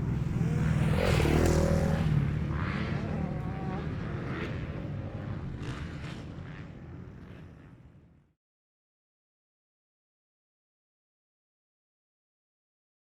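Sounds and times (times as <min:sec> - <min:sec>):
motocross bike engines: 0:00.0 - 0:08.2.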